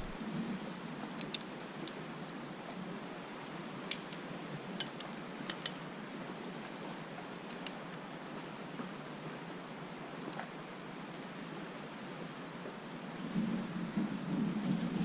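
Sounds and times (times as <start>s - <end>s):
sharp clinks: 4.8s - 5.8s.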